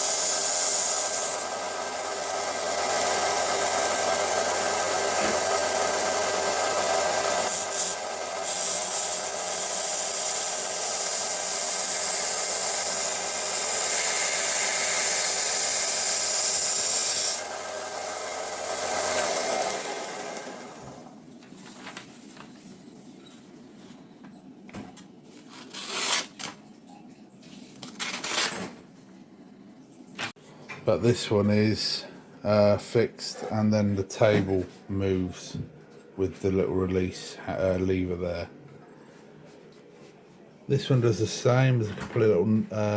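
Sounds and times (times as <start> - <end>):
belt sander running: 0.0 - 21.1.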